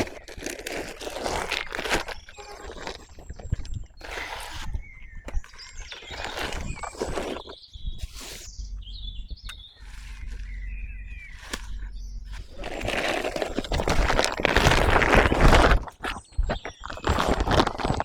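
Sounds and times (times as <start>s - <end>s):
loud rustling and crunching: 0.0s - 18.0s
faint bird chirps: 1.6s - 13.0s.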